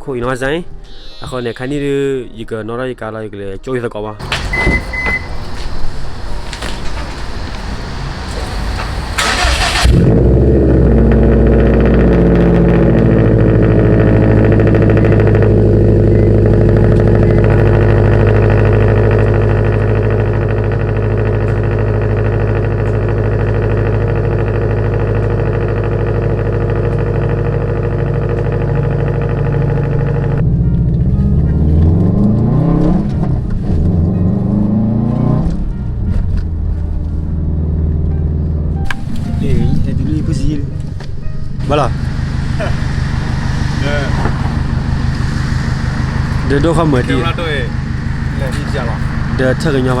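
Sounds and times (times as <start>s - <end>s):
rushing noise: 4.2s - 11.4s, 41.6s - 50.0s
car engine starting and idling: 4.2s - 50.0s.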